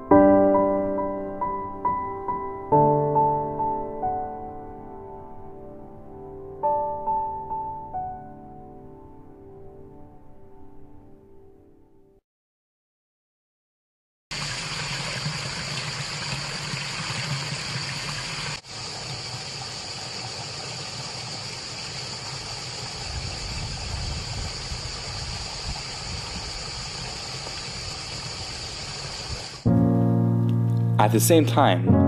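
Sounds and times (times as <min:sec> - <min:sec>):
fountain water splashing into trough: 0:14.3 - 0:29.6.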